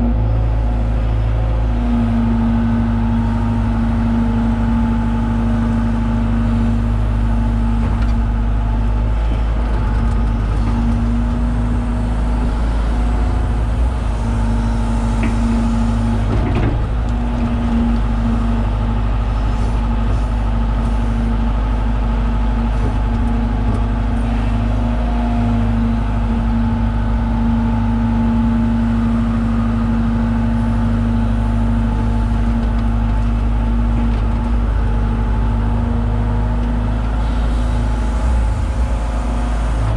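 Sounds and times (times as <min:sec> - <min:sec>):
excavator diesel engine droning: 0:00.0 - 0:39.9.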